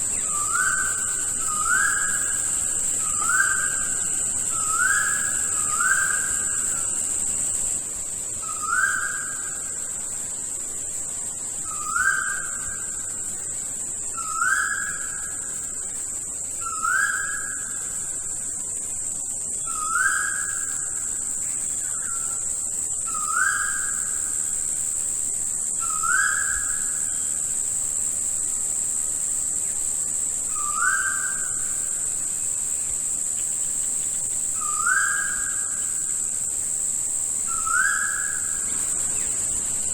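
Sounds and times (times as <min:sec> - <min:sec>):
high insect drone: 0:00.0 - 0:39.9
bird whistling: 0:37.5 - 0:38.6.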